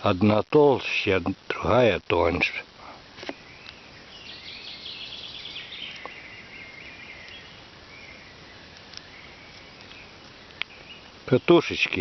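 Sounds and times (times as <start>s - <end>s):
faint ticks: 8.7s - 10.9s.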